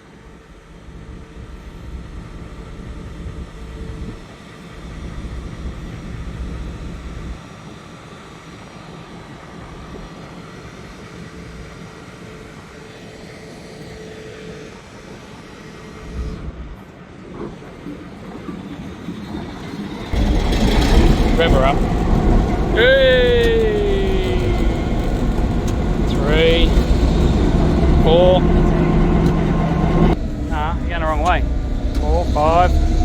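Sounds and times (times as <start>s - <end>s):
locomotive diesel engine running: 19.6s - 33.0s.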